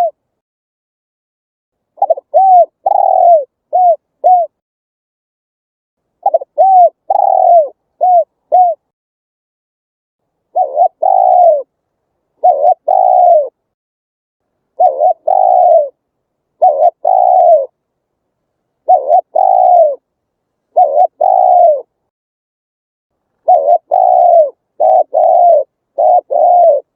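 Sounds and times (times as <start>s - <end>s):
dove cooing: 0.0s - 0.2s, 2.0s - 4.6s, 6.2s - 8.9s, 10.5s - 11.7s, 12.4s - 13.6s, 14.7s - 16.0s, 16.6s - 17.8s, 18.8s - 20.1s, 20.7s - 22.0s, 23.4s - 26.9s.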